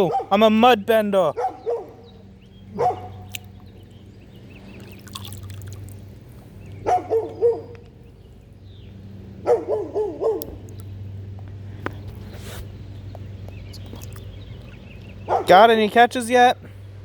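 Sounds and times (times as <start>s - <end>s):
dog barking: 0.0s - 0.5s, 1.3s - 3.3s, 6.8s - 7.8s, 9.4s - 10.6s, 15.2s - 15.6s.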